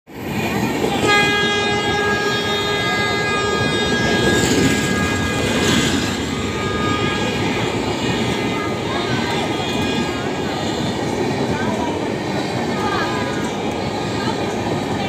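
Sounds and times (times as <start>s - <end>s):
passenger coaches rumbling and rattling: 0.1s - 15.0s
train horn chord: 0.9s - 10.8s.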